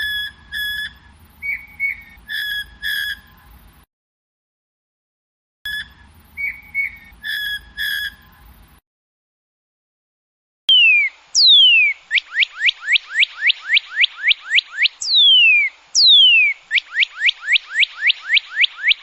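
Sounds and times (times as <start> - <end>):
bird singing whistles and trills: 0.0 - 3.8, 5.7 - 8.8, 10.7 - 19.0.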